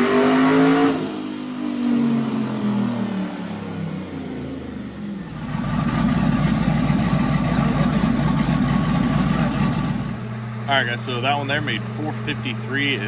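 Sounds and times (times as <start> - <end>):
truck engine rumbling idle: 3.4 - 13.0.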